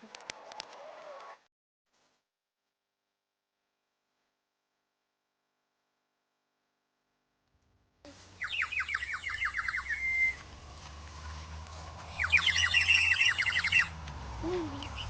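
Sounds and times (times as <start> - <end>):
songbird singing: 8.1 - 15.0
low steady rumble: 9.8 - 15.0.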